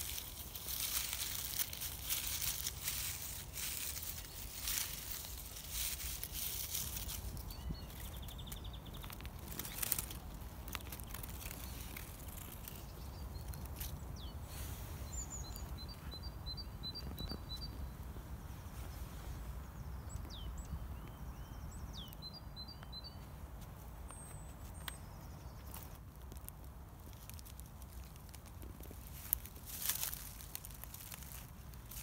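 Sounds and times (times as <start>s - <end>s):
rustling: 0.0s - 15.7s, 25.6s - 32.0s
small birds calling: 0.0s - 23.4s.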